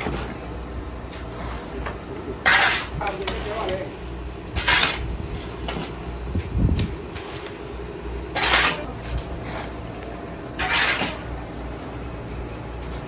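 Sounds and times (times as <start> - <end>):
steady low hum: 0.0 - 13.0
sand scraping in metal pan: 2.4 - 3.8, 8.3 - 9.8, 10.6 - 12.0.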